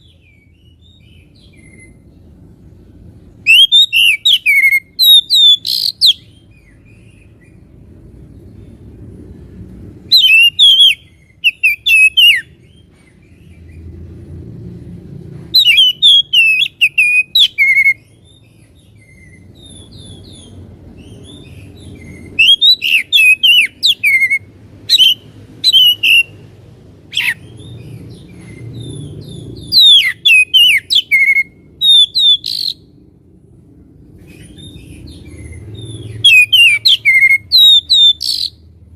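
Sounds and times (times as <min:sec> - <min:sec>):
low background noise: 0:00.0 - 0:38.9
bird singing whistled phrases: 0:03.4 - 0:06.4, 0:10.1 - 0:12.6, 0:15.6 - 0:18.1, 0:22.0 - 0:26.4, 0:29.6 - 0:32.9, 0:36.1 - 0:38.6.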